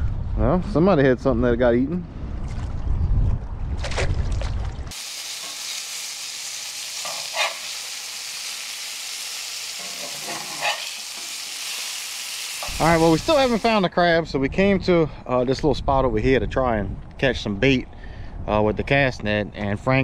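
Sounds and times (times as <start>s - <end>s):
wind buffeting microphone: 0.0s - 4.9s, 14.2s - 20.0s
fish fillets sizzling in oil: 4.9s - 13.7s
metal spatula scraping pan: 7.0s - 7.7s, 9.8s - 11.3s.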